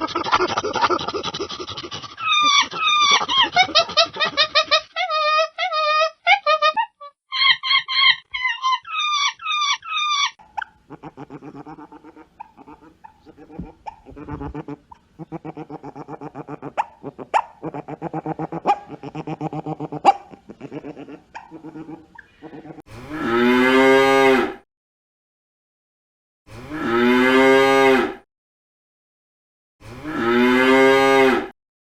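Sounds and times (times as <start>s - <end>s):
high wavering animal cries: 2.0s - 22.8s
cow mooing loudly: 22.9s - 24.6s, 26.5s - 28.2s, 29.8s - 31.5s.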